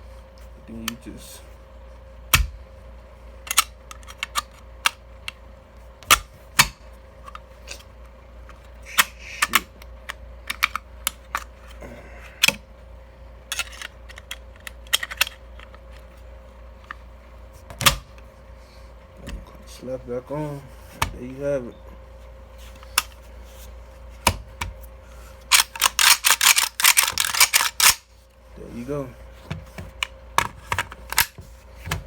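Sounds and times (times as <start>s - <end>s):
metal gun parts clicking: 3.5s - 5.0s, 13.5s - 15.8s, 25.5s - 28.0s, 31.1s - 31.4s.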